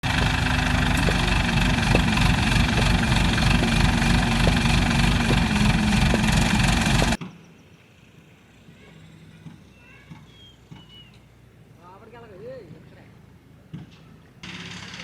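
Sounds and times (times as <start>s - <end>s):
engine idling: 0.0s - 7.2s
faint regular ticking: 0.1s - 7.2s.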